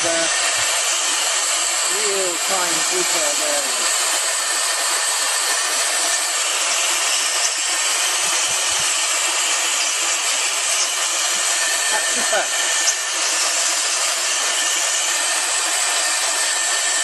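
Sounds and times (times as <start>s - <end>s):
air duster rushing air: 0.0s - 9.6s.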